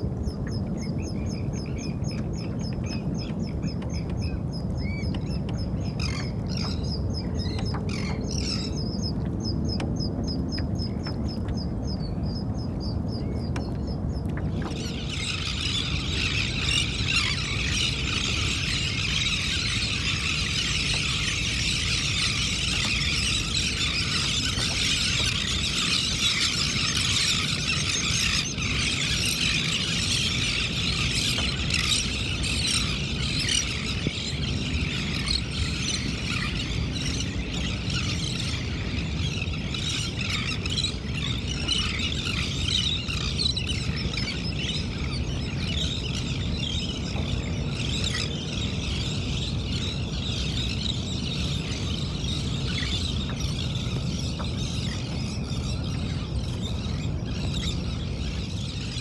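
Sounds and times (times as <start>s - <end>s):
flock of birds squealing: 14.7s - 53.8s.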